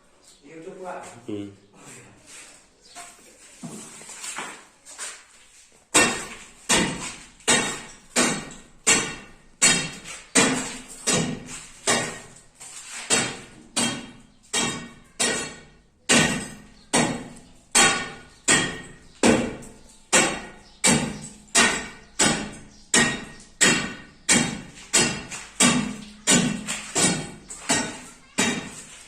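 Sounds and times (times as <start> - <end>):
metal tool striking concrete: 5.9 - 12.4, 13.0 - 29.0.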